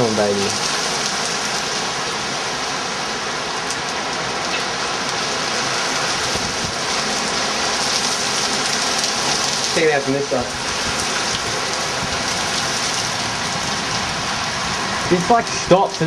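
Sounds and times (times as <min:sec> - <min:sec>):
heavy rain hitting the ground: 0:00.0 - 0:16.0.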